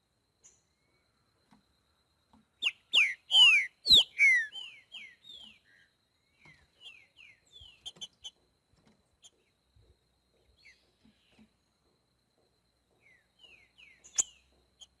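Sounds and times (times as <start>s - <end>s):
bird singing whistles: 2.6s - 5.8s, 13.4s - 14.4s.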